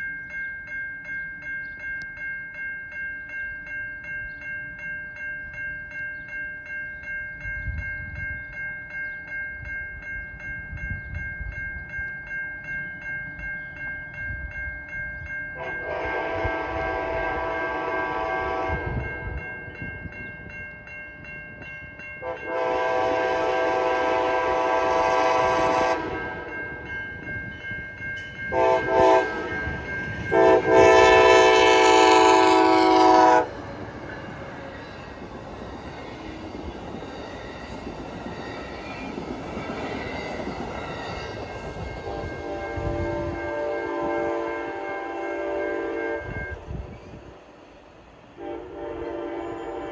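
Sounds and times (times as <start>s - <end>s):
crossing signal bell ringing: 0.0s - 49.9s
train rumbling: 15.1s - 20.6s, 21.2s - 49.9s
locomotive air horn blasts: 15.6s - 19.0s, 22.2s - 26.5s, 28.5s - 33.5s, 42.1s - 46.6s, 48.4s - 49.9s.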